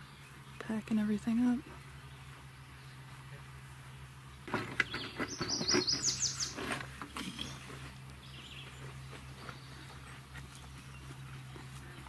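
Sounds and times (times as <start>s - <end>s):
songbird singing down-slurred notes: 0.0s - 12.0s.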